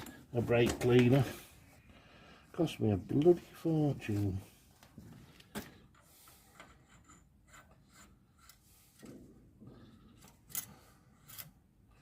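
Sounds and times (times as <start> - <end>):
faint rubbing and scraping: 6.0 - 11.6
light clicks of tools: 10.2 - 12.0.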